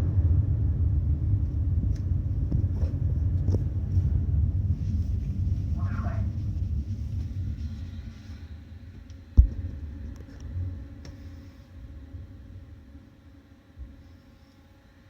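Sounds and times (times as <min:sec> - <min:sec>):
ship machinery rumbling: 0:00.0 - 0:08.2.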